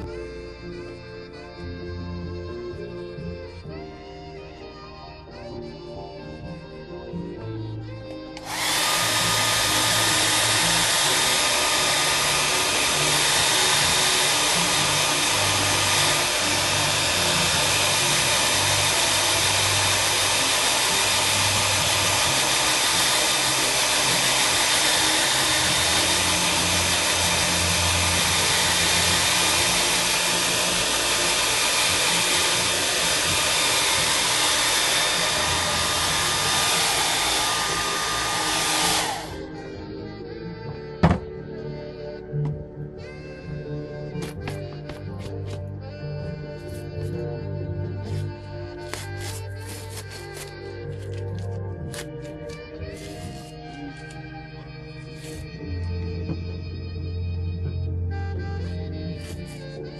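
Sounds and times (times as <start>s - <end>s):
background music: 0.0s - 59.9s
electric blower motor running: 8.3s - 40.1s, 48.9s - 56.8s.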